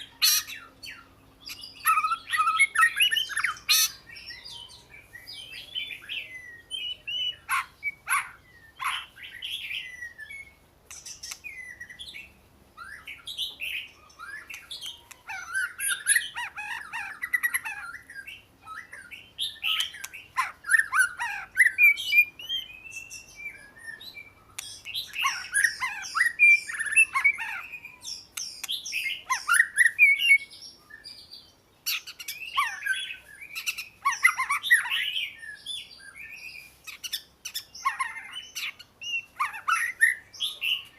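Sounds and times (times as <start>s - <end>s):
bird singing whistled phrases: 0.0s - 31.3s.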